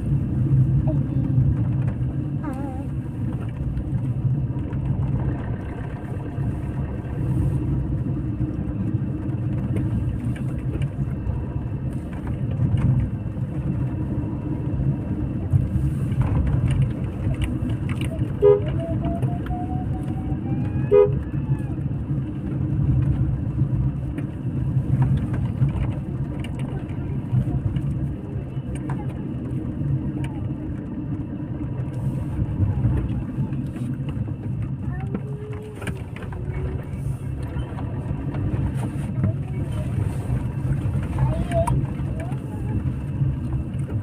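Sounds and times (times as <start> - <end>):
vehicle engine and road rumble: 0.0 - 44.0
car horn beep: 18.3 - 19.1, 20.9 - 21.2.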